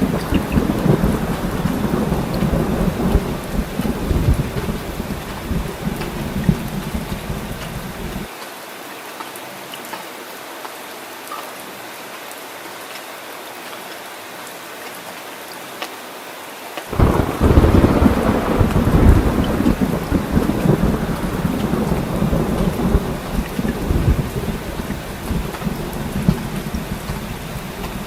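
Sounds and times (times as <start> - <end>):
thunder rumbling: 0.0 - 8.3, 16.9 - 28.0
heavy rain falling: 0.0 - 9.0, 11.9 - 28.0.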